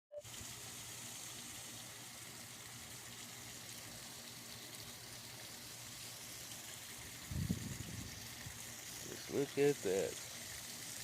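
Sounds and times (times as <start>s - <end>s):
even hiss: 0.2s - 11.0s.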